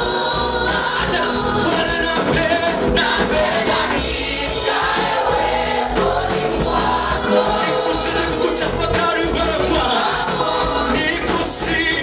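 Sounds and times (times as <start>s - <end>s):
bass line: 0.0s - 12.0s
choir singing: 0.0s - 12.0s
live band playing: 0.0s - 12.0s.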